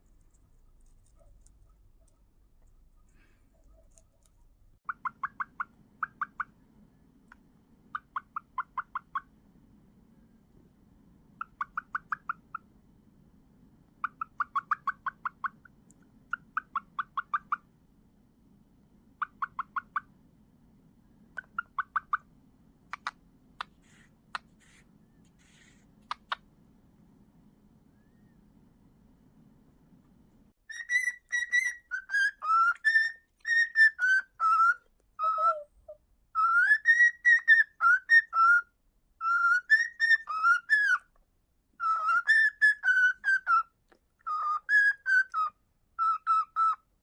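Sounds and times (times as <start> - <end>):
sharp clicks: 22.9 - 24.6, 26.0 - 26.5.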